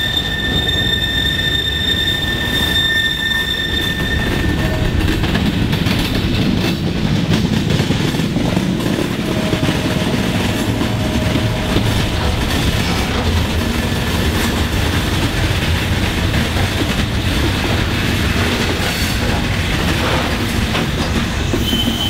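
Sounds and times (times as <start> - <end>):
high-pitched wheel squeal: 0.0 - 5.1, 21.4 - 22.0
train wheels rumbling on rail: 0.0 - 22.0.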